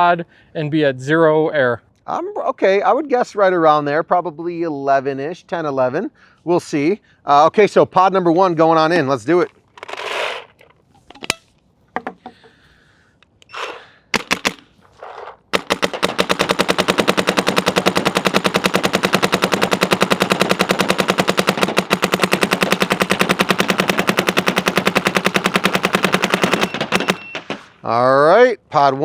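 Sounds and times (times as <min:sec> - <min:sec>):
paintball marker rapid firing: 0:14.2 - 0:14.7, 0:15.5 - 0:27.7.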